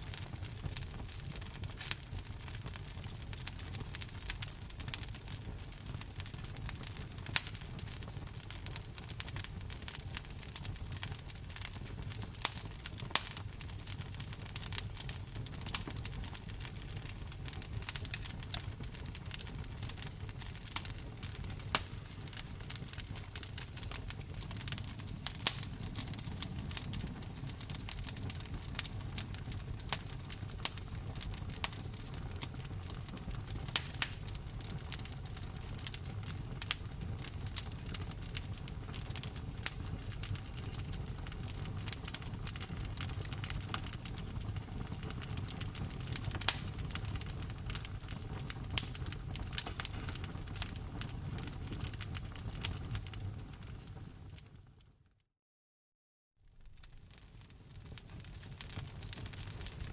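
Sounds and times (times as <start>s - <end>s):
low rumble of flames: 0.0s - 54.8s, 56.5s - 59.9s
burning wood snapping and popping: 0.1s - 53.9s, 56.6s - 59.9s.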